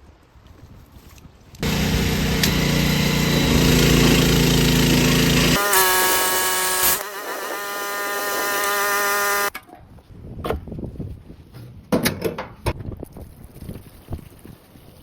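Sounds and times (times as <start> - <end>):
pressure washer running: 1.6 - 9.5.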